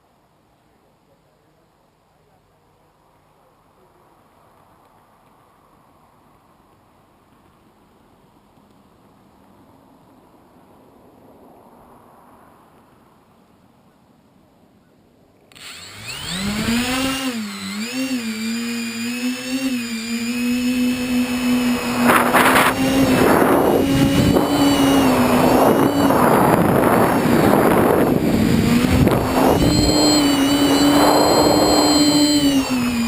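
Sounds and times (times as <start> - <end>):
drone motors and propellers whining: 15.5 - 33.0
rushing noise: 21.0 - 33.0.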